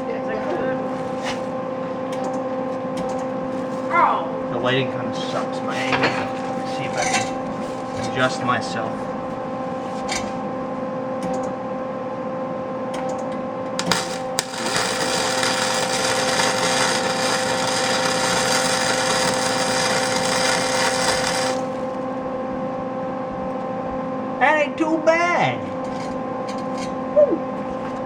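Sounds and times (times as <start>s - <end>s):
steady hum: 0.0s - 28.0s
welder arc crackling: 13.7s - 22.1s.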